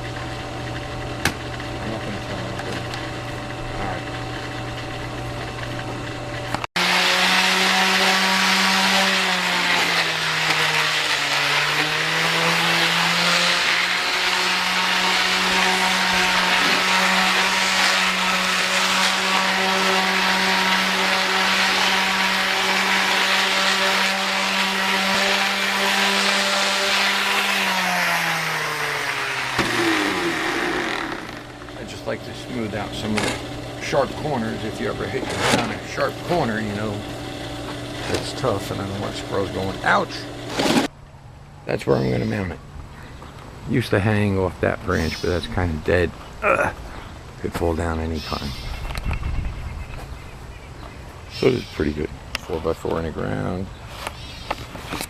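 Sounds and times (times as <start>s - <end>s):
power tool motor running: 0.0s - 40.9s.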